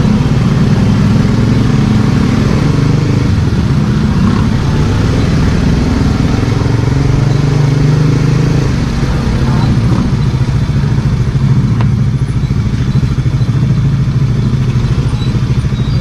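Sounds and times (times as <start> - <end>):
small motorcycle engine running: 8.9 - 16.0.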